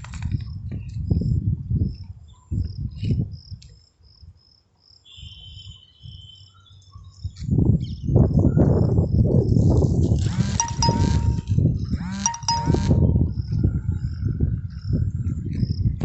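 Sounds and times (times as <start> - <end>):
wind on microphone: 0.0 - 3.6, 7.2 - 16.0.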